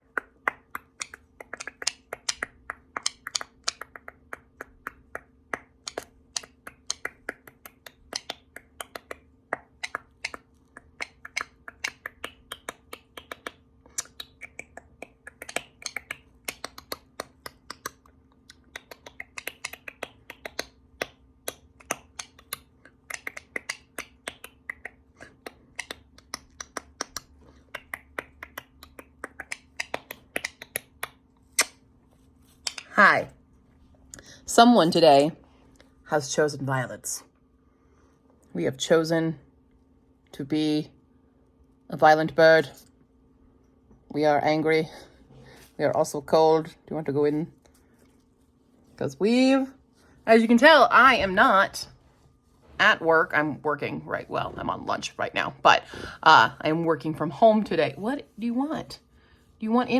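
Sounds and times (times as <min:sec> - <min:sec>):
rapid sharp clicks and taps: 0:00.0 - 0:31.7
faint steady hum: 0:00.0 - 0:59.9.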